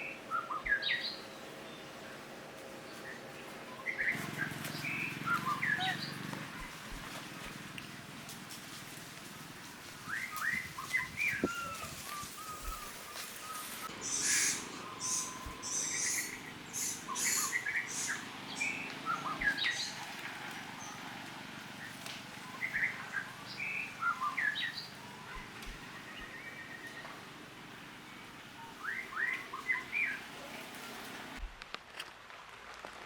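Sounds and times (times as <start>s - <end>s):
high chirping calls: 3.9s - 6.7s, 10.1s - 20.0s, 28.6s - 30.3s.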